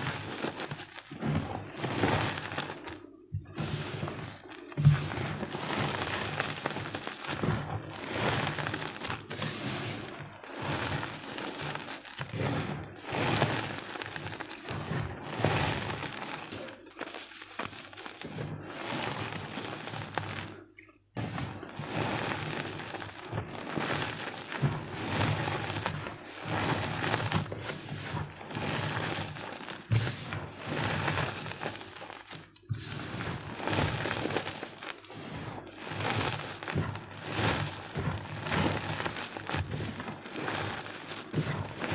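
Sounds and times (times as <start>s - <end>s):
chalk crunching by hand: 26.5s - 41.9s.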